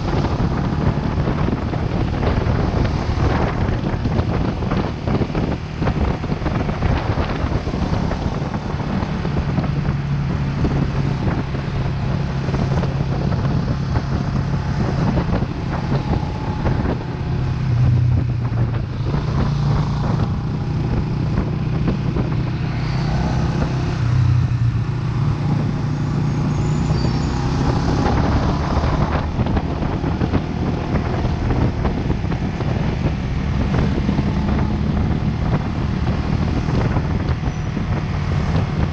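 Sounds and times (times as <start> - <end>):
motorcycle engine running: 0.0 - 22.6
wind rushing over microphone: 0.0 - 38.9.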